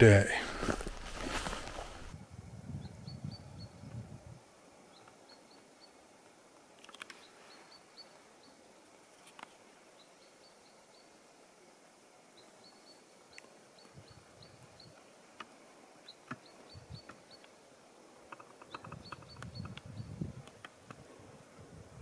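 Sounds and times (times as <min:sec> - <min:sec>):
small bird chirping: 0:02.8 - 0:04.0, 0:04.9 - 0:06.0, 0:09.2 - 0:11.2, 0:12.4 - 0:15.1, 0:16.0 - 0:17.6, 0:18.2 - 0:20.7
faint clicks: 0:06.6 - 0:07.2, 0:18.2 - 0:21.0.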